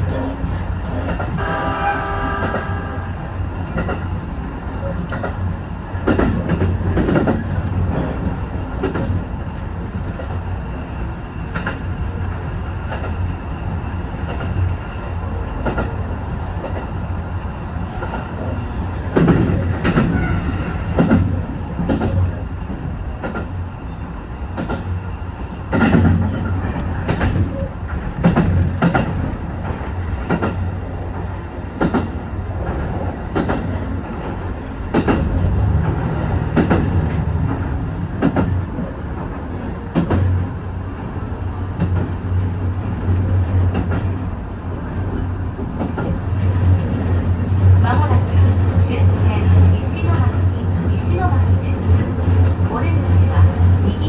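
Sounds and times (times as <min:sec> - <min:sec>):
train rumbling: 0:00.0 - 0:54.0
train wheels clacking: 0:00.4 - 0:09.3, 0:25.6 - 0:54.0.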